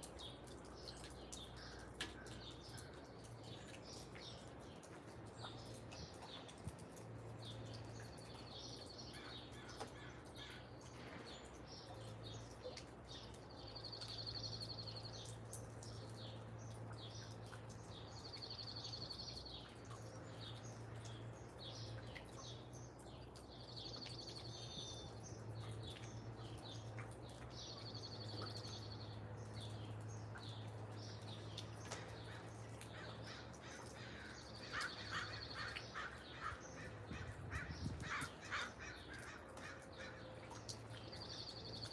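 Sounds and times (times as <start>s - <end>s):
birds calling and chirping: 0.0s - 41.9s
crows cawing: 32.3s - 40.3s.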